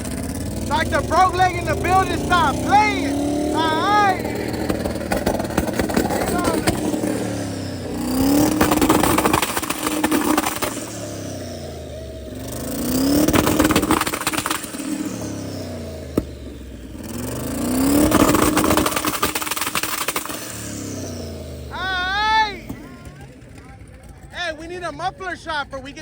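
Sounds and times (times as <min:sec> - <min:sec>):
launch limiter crackle: 0:00.0 - 0:11.4, 0:12.4 - 0:16.5, 0:17.5 - 0:21.2
car engine idling: 0:00.0 - 0:26.0
car engine revving: 0:00.0 - 0:26.0.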